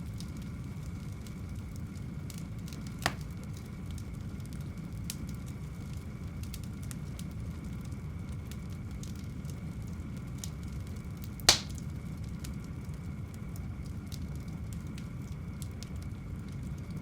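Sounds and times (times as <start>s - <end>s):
low rumble of fire: 0.0s - 17.0s
wood fire crackling: 0.2s - 17.0s
loud sharp pop of fire: 3.0s - 3.4s, 11.5s - 11.9s.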